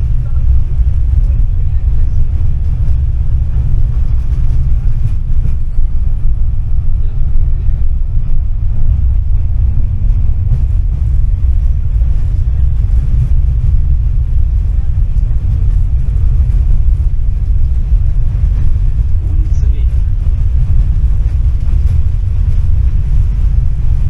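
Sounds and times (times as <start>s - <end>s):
tram motors and wheels rumbling: 0.0s - 24.0s.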